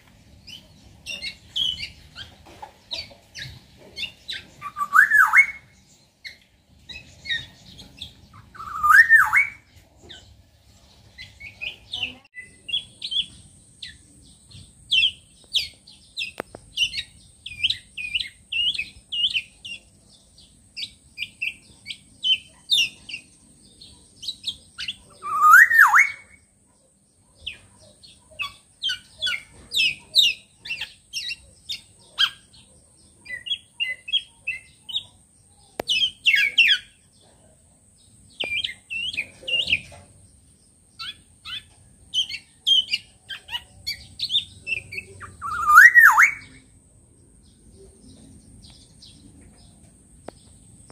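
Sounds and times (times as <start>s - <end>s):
bird chirping: 0.0s - 50.9s
bird rising calls: 8.3s - 9.7s, 24.8s - 26.4s, 41.0s - 46.6s.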